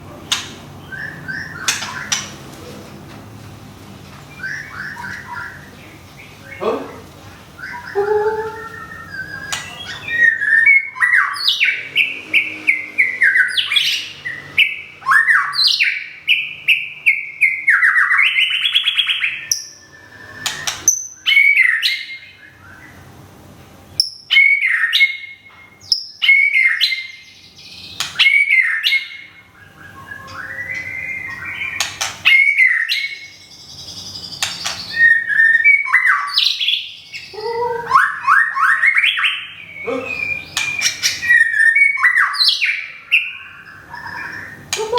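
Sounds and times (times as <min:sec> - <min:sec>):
sharp bird clicks: 0:00.3 - 0:00.6, 0:01.6 - 0:02.4, 0:09.4 - 0:09.8, 0:20.4 - 0:21.0, 0:27.9 - 0:28.3, 0:31.7 - 0:32.3, 0:34.2 - 0:35.0, 0:40.5 - 0:41.2
bird singing whistled phrases: 0:04.3 - 0:05.7, 0:07.6 - 0:12.0, 0:12.7 - 0:23.0, 0:24.0 - 0:44.9.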